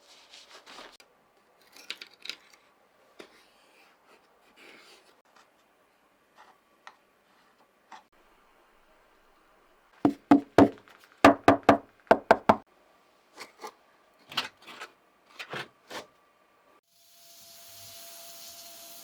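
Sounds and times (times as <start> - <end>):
sharp knocks: 10.1 - 12.6.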